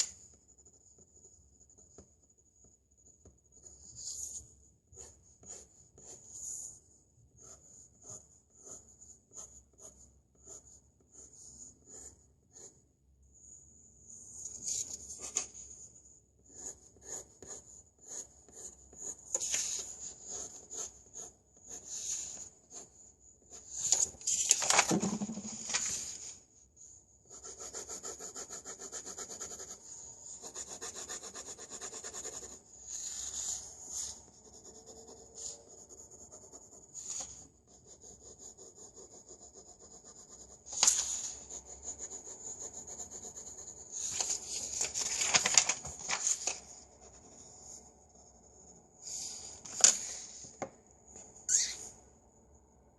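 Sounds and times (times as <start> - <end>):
pencil drawing on paper: 0.1 - 6.8, 7.4 - 23.8, 25.0 - 25.6, 27.2 - 44.6
pencil scraping: 7.4 - 12.8, 25.0 - 25.7, 27.3 - 44.6.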